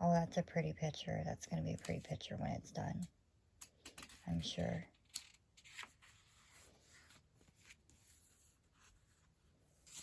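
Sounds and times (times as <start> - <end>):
paper pages rustling: 3.9 - 10.0.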